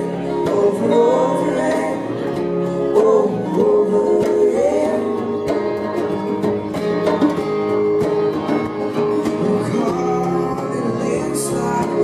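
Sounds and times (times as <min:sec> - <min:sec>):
person singing: 0:00.0 - 0:06.0, 0:08.9 - 0:12.0
acoustic string band playing: 0:00.0 - 0:12.0
banjo: 0:00.0 - 0:12.0
plucked guitar: 0:00.0 - 0:12.0.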